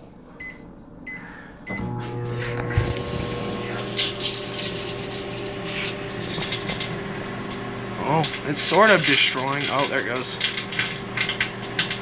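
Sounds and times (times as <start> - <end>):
keypad beep: 0.4 - 1.8
microwave oven hum and fan: 0.4 - 12.0
sparking crackles: 2.1 - 12.0.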